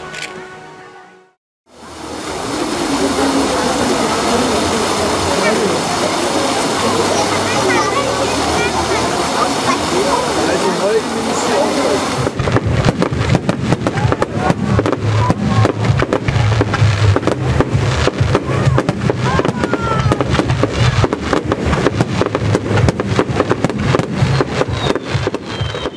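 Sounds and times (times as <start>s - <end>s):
fireworks bangs and crackles: 2.0s - 25.9s
deep rumble: 12.0s - 25.9s.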